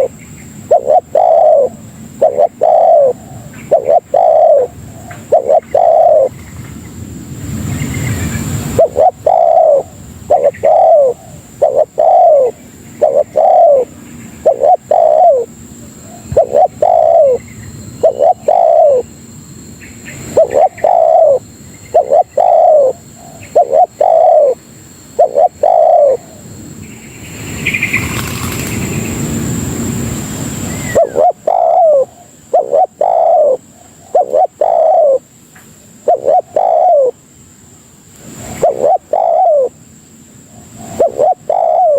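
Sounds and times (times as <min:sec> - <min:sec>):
dove cooing: 0:00.0 - 0:06.6, 0:08.1 - 0:19.1, 0:20.1 - 0:26.5, 0:30.8 - 0:35.3, 0:36.0 - 0:37.2, 0:38.4 - 0:39.8, 0:40.5 - 0:41.9.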